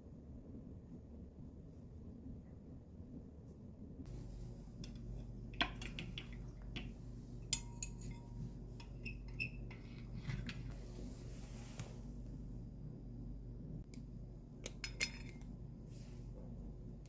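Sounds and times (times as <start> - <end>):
dishes and utensils clinking: 5.6 - 10.6, 14.7 - 15.5
glass ringing tones: 7.5 - 9.8.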